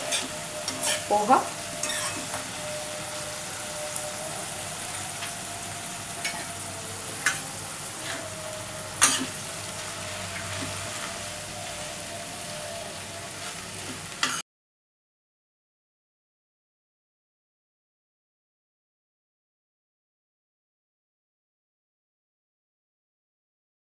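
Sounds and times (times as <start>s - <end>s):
oil sizzling in a pan: 0.0s - 14.4s.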